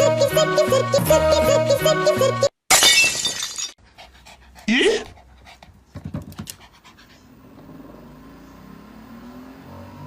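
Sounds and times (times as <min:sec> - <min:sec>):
dog panting: 0:03.8 - 0:07.6.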